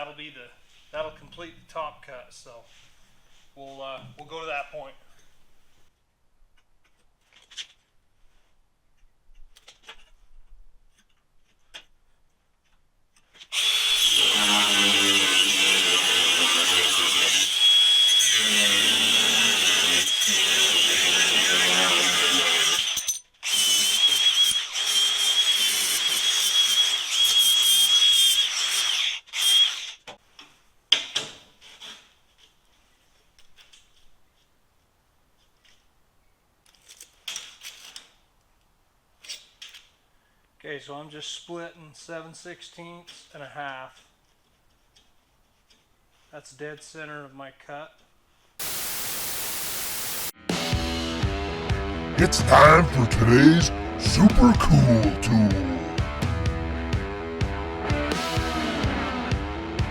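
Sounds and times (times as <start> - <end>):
cut-off disc cutting steel: 13.6 - 27.3.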